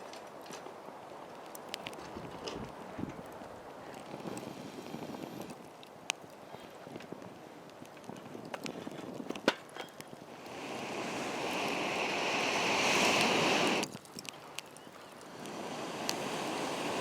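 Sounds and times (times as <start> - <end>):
campfire crackling and popping: 0.0 - 17.0
rushing hiss: 4.0 - 5.6, 10.2 - 13.9, 15.1 - 17.0.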